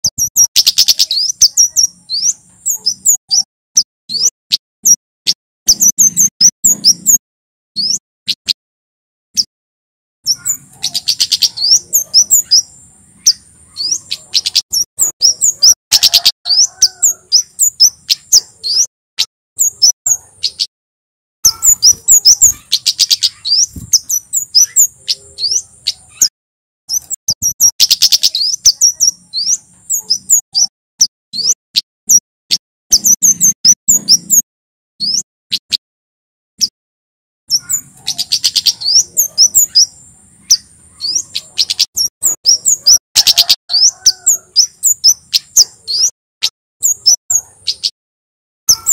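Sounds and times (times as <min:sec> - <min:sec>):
bird singing sharp high chips: 0:00.0 - 0:07.2, 0:07.8 - 0:08.6, 0:10.2 - 0:20.7, 0:21.4 - 0:26.3, 0:26.9 - 0:34.4, 0:35.0 - 0:35.8, 0:37.5 - 0:48.0, 0:48.7 - 0:48.9
thin high bird trill: 0:00.1 - 0:04.3, 0:10.3 - 0:18.9, 0:21.4 - 0:26.3, 0:26.9 - 0:31.5, 0:37.5 - 0:46.1.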